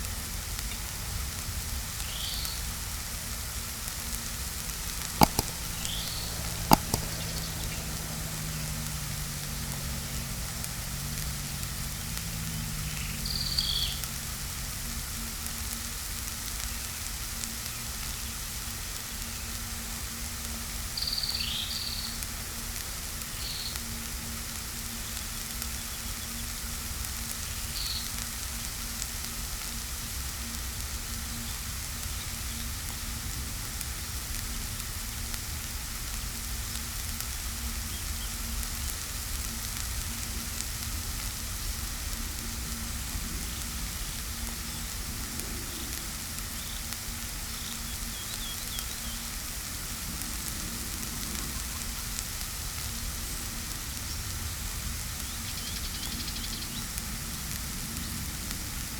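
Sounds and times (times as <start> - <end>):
heavy rain falling: 5.3 - 15.0.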